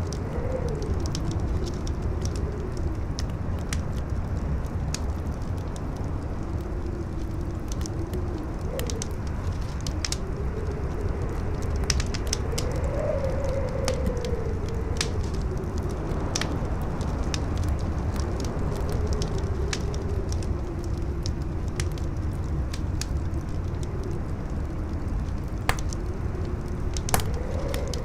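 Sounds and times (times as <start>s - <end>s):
campfire crackling and popping: 0.0s - 28.0s
howling wind: 0.0s - 28.0s
strong wind rumbling: 0.0s - 28.0s.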